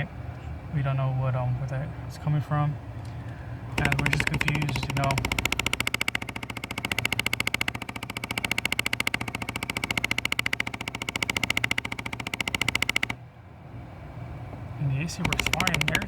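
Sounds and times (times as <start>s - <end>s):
clicking rattle from air ducts: 3.0s - 13.2s, 15.1s - 16.0s.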